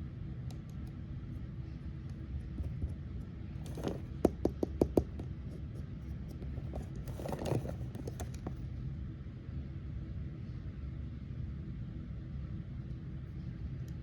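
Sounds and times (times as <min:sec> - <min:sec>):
steady low hum: 0:00.0 - 0:14.0
rustling: 0:06.3 - 0:08.6.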